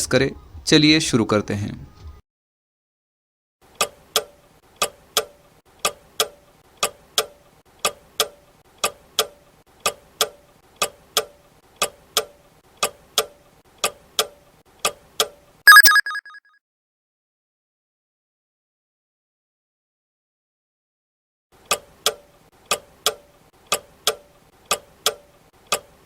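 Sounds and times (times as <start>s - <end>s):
short ringing tone: 15.7s - 16.4s.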